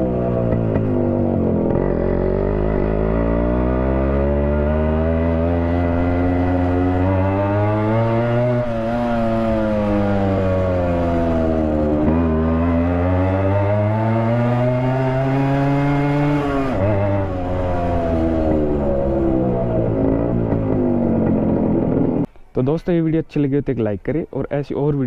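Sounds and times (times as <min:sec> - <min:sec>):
motorcycle engine running loud: 0:00.0 - 0:22.3.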